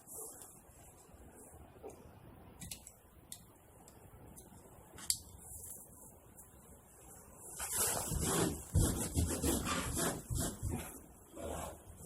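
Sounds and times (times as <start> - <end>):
rubbing strokes on wall: 7.4 - 12.0.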